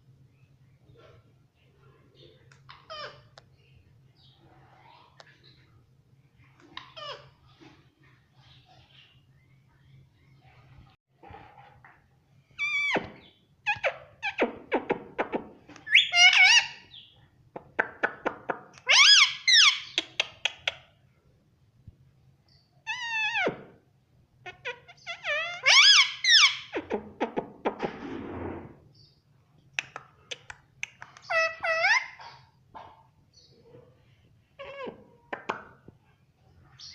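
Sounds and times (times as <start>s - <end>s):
parrot squawking: 2.7s - 3.3s, 6.7s - 7.4s, 12.6s - 14.6s, 15.8s - 17.0s, 18.8s - 20.8s, 22.9s - 23.7s, 24.4s - 27.0s, 30.3s - 32.5s.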